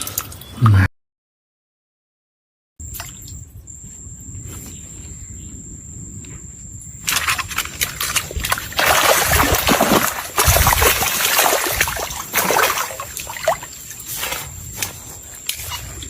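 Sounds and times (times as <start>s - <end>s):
water splashing and sloshing: 0.0s - 0.6s, 2.8s - 3.4s, 6.9s - 16.0s.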